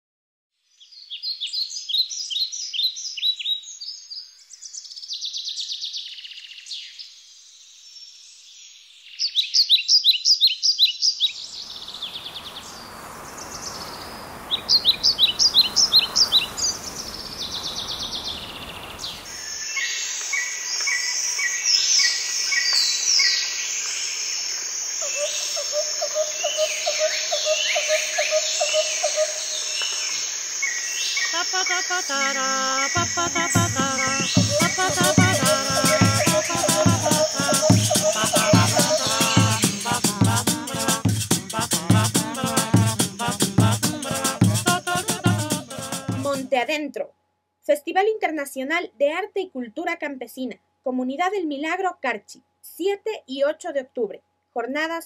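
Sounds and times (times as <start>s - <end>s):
birds singing trilled phrases: 8.6s - 12.8s, 13.4s - 23.6s, 25.0s - 29.8s, 30.6s - 46.5s
chorus of chirping birds: 9.1s - 46.2s
high insect buzz: 11.8s - 46.5s.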